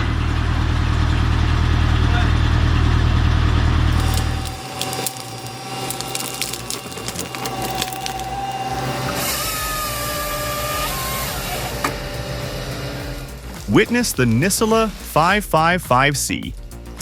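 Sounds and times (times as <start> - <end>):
wood cracking and splintering: 3.9 - 9.3.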